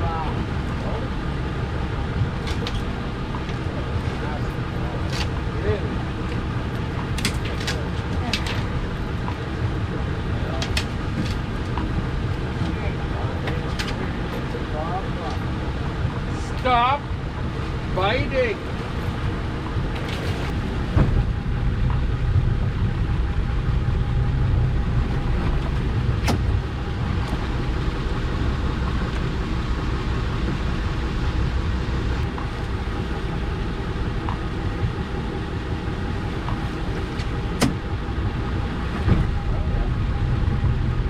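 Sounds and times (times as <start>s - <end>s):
boat engine droning: 0.0s - 41.0s.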